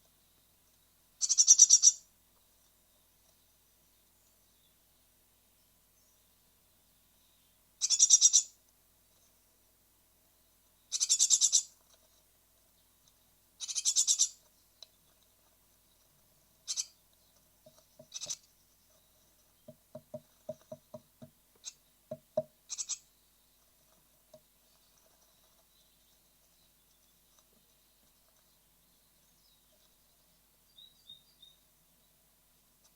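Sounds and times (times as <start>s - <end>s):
nestlings calling: 1.2s - 2.1s, 7.8s - 8.6s, 10.8s - 11.8s, 13.6s - 14.5s, 16.6s - 23.7s
dull knocks in nest box: 19.7s - 21.4s.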